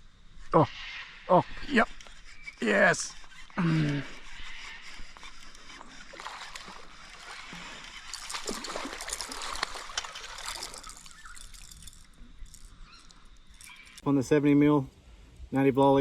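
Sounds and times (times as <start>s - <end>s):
water splashing and dripping: 6.1s - 14.0s.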